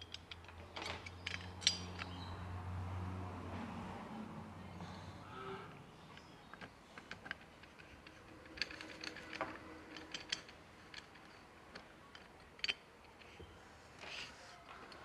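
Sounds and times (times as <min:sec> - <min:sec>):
metal parts clicking and clinking: 0:00.0 - 0:02.3, 0:06.0 - 0:15.0.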